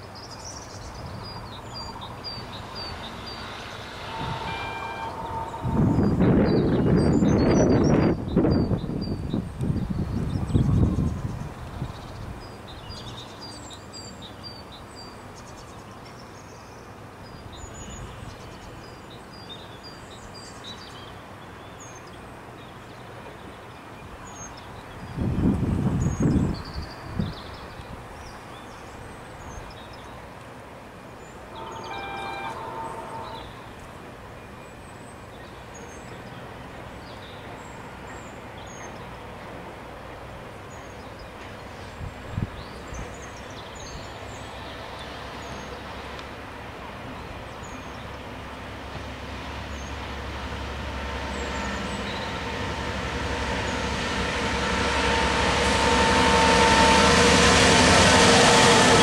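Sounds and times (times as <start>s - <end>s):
diesel locomotive engine: 0.0s - 59.0s
train wheel noise: 1.1s - 12.6s, 30.2s - 34.3s, 35.6s - 59.0s
distant train horn: 2.2s - 8.2s, 31.5s - 34.0s, 47.7s - 59.0s.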